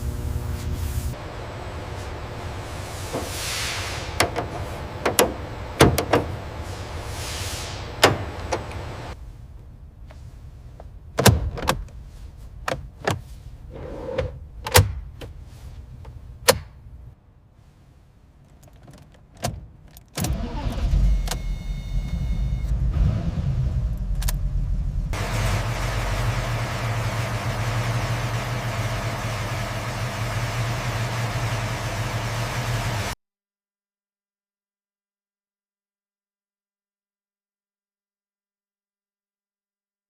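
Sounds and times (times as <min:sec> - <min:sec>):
hiss: 0:02.8 - 0:04.2, 0:06.6 - 0:08.3
clicks and knocks of car work: 0:04.2 - 0:06.4
loud low rumble: 0:21.9 - 0:27.8.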